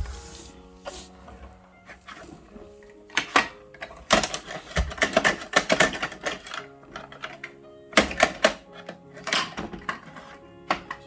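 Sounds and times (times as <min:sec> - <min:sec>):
plastic toy truck clicking: 0:03.1 - 0:11.0.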